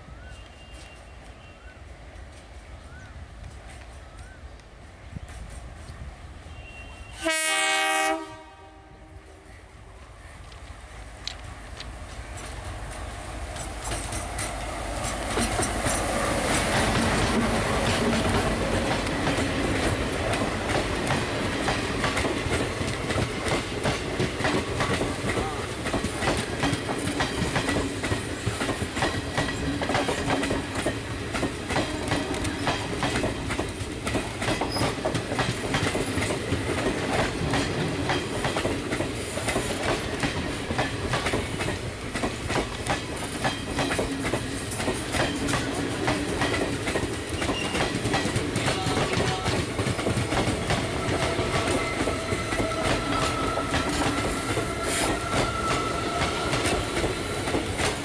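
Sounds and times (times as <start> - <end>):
train wheels clattering on rails: 10.4 - 58.0
high squeal of wheels: 47.4 - 47.9, 51.0 - 57.5.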